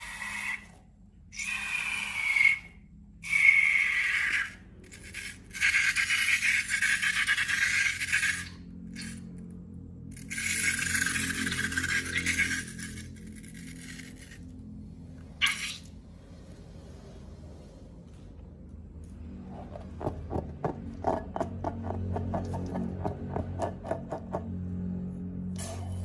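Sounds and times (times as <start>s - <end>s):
faint low hum: 8.0s - 26.0s.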